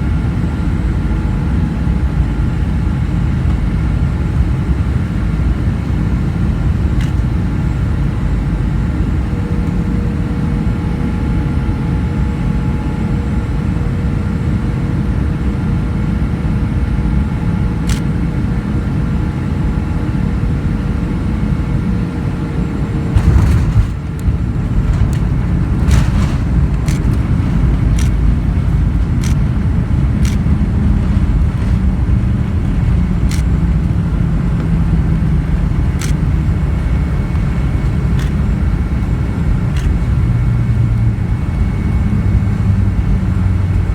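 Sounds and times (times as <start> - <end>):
airliner rumble: 0.0 - 43.9
loud thump: 23.2 - 24.2
sharp clicks: 28.0 - 28.2, 30.2 - 30.5.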